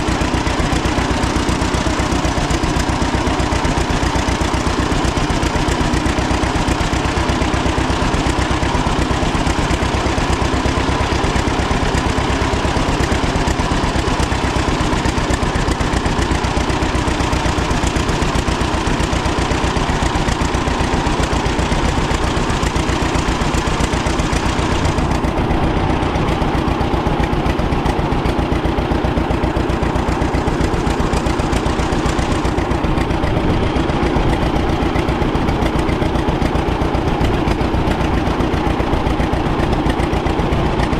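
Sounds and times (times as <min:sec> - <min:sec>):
tractor engine idling: 0:00.0 - 0:40.9.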